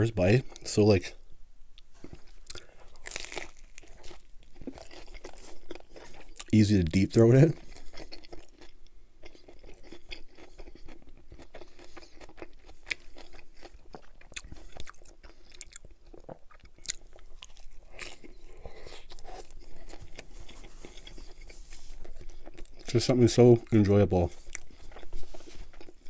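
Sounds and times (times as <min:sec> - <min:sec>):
crisp chewing crunches: 0:01.9 - 0:26.0.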